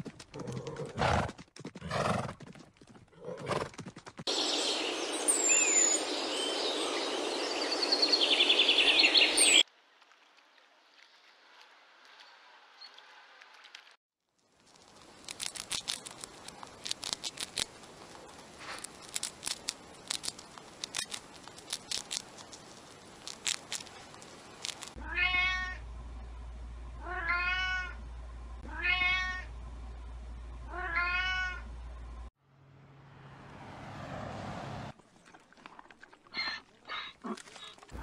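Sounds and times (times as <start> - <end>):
hamster chewing food: 14.6 - 25.0
low steady hum: 14.8 - 32.3
cat meowing: 25.0 - 25.8, 27.0 - 28.0, 28.7 - 29.5, 30.7 - 31.6.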